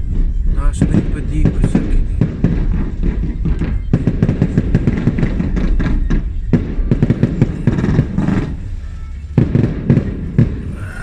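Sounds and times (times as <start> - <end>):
fireworks crackling and banging: 0.0 - 11.0.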